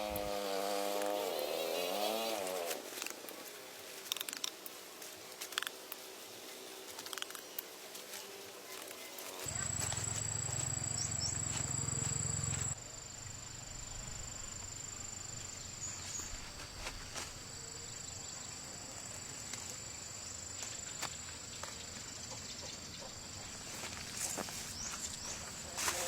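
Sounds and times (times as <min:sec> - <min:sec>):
insects chirring: 0:08.7 - 0:26.0.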